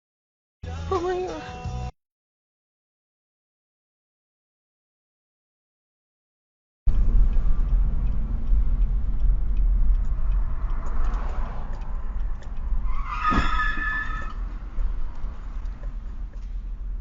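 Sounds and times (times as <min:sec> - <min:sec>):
car driving rumble: 0:06.9 - 0:17.0
car horn: 0:12.8 - 0:14.6.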